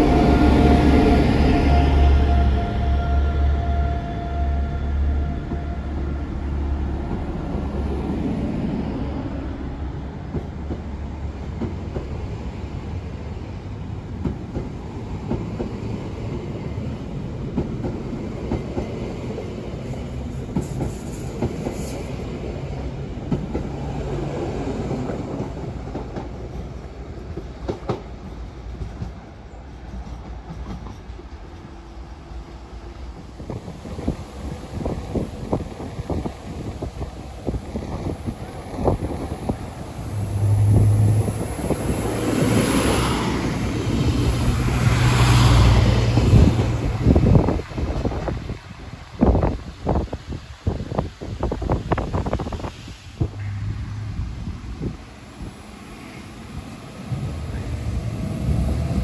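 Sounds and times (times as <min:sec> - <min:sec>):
train rumble: 0:00.0 - 0:59.0
train wheels clicking over rail joints: 0:23.2 - 0:31.8.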